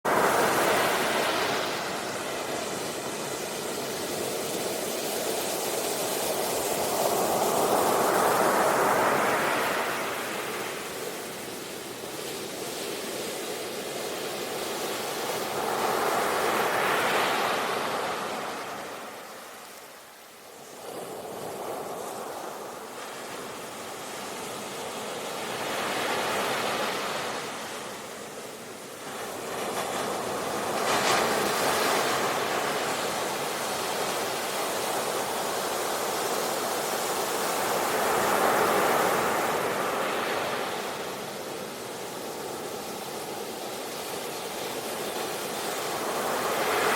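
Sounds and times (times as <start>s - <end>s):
sea waves breaking on beach: 0.1s - 46.9s.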